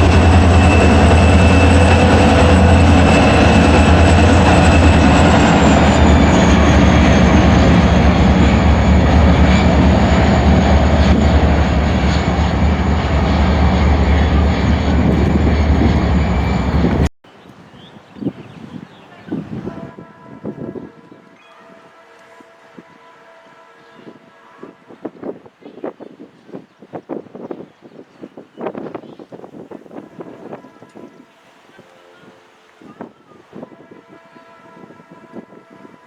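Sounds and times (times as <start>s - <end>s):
high squealing tones: 0.0s - 17.1s
train wheels rumbling on rails: 0.0s - 17.1s.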